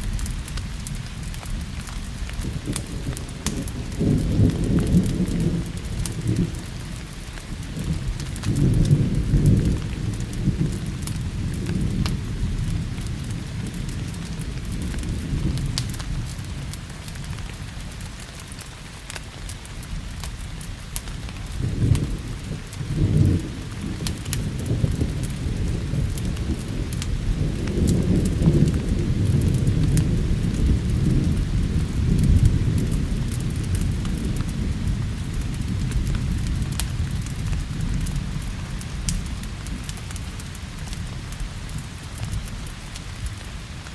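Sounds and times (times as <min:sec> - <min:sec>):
low rolling thunder: 0:00.0 - 0:17.8, 0:21.4 - 0:43.7
steady rain: 0:00.0 - 0:43.9
wood fire crackling: 0:00.0 - 0:43.9.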